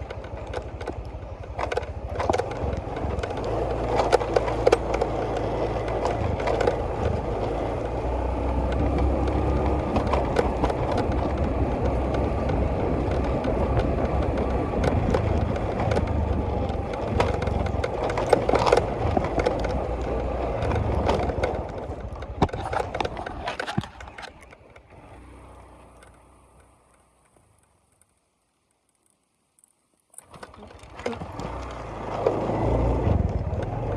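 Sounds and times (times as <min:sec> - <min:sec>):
sharp knocks and clicks: 0:00.0 - 0:25.3
vehicle rattling over rough track: 0:00.0 - 0:29.4, 0:30.0 - 0:33.9.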